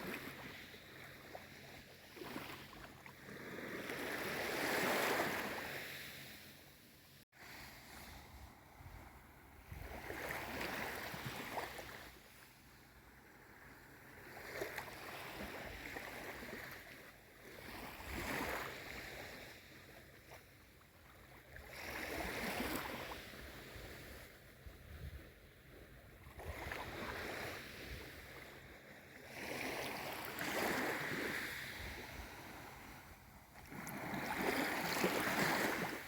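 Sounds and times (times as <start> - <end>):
gentle sea waves: 0.0 - 36.0.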